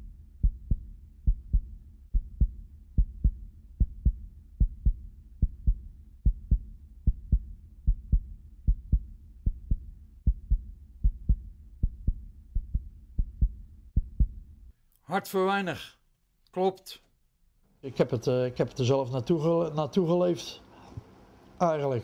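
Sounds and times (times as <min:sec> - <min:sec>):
heartbeat double thumps: 0:00.0 - 0:14.6
low rumble: 0:00.0 - 0:14.7.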